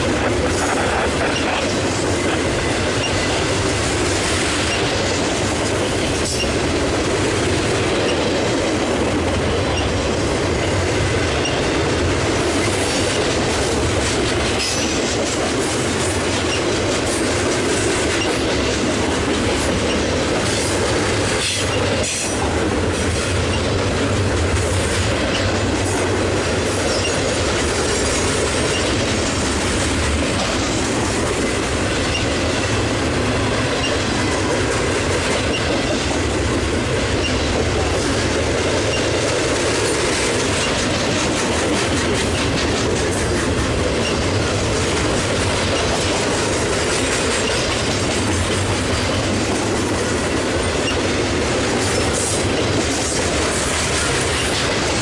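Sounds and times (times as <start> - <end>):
freight cars rumbling on rails: 0.0 - 55.0
wheel clacks on rail joints: 0.0 - 55.0.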